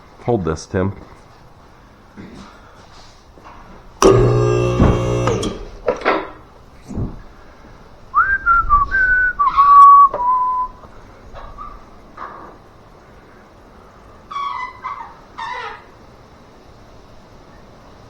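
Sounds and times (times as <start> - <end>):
person whistling: 8.2 - 10.8.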